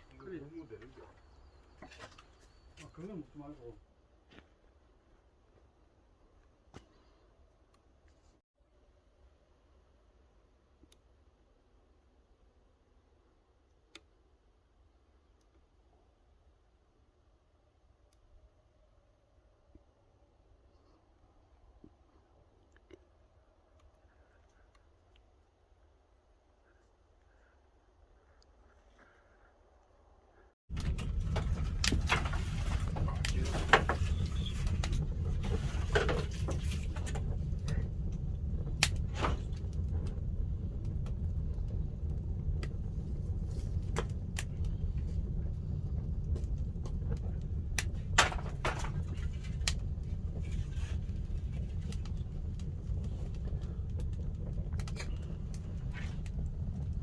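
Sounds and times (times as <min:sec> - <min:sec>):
low rumble of fire: 0:00.0 - 0:57.0
fire crackles and pops: 0:30.7 - 0:57.0.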